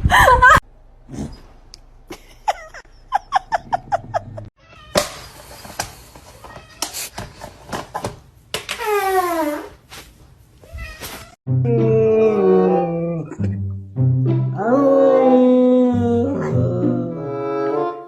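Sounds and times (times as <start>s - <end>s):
knocks and scuffling: 9.8s - 11.4s.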